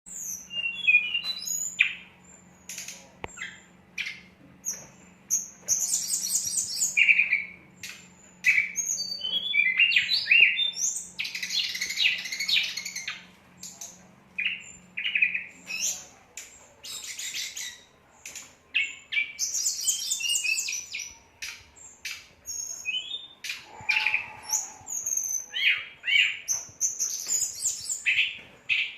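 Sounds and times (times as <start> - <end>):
songbird singing: 0.1 - 28.9
low steady hum: 20.6 - 26.8.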